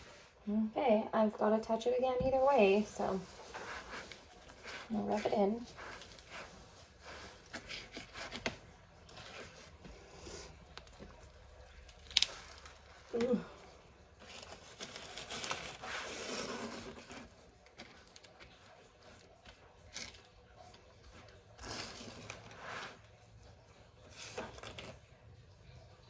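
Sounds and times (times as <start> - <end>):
food rustling and scraping: 2.3 - 25.8.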